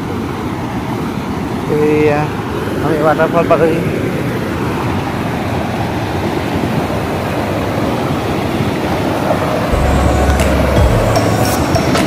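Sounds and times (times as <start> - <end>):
low rumble: 9.7 - 11.9.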